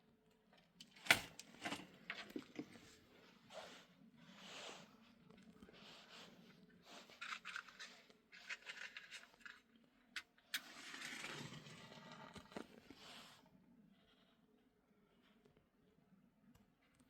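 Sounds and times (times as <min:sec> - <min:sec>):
faint scraping: 0:10.6 - 0:13.4.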